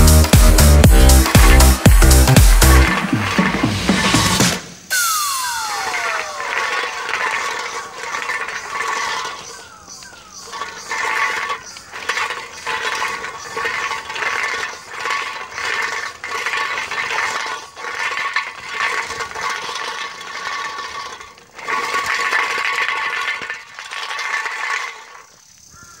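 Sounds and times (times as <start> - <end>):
toy electric motor whining: 1.0 - 25.9.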